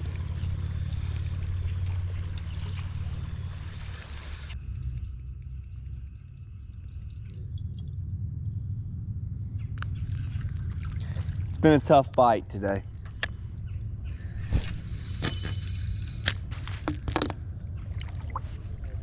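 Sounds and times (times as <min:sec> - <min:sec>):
water noise: 0:00.0 - 0:04.6, 0:09.8 - 0:19.0
low rumble: 0:00.0 - 0:19.0.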